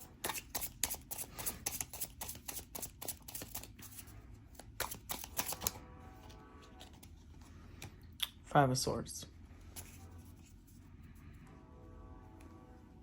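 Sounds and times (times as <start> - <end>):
cards being shuffled: 0.0 - 5.8.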